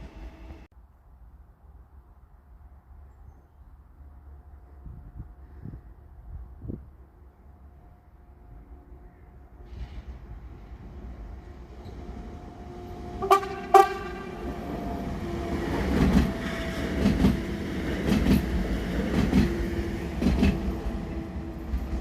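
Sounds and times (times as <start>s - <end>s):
constant train hum: 0.0s - 22.0s
train horn blasts: 12.6s - 17.0s
train wheels clattering over rail joints: 15.4s - 20.8s.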